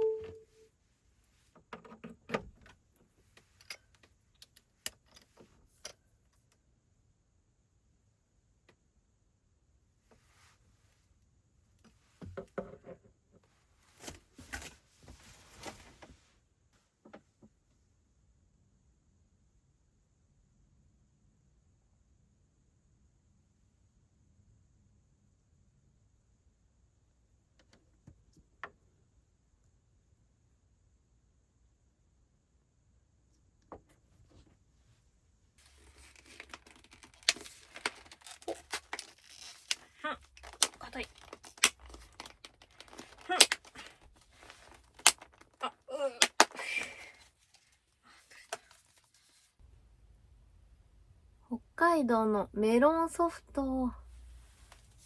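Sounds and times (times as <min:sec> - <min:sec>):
rustling handling noise: 0:13.5 - 0:16.3, 0:35.6 - 0:49.6
packaging crinkling and tearing: 0:35.6 - 0:47.7.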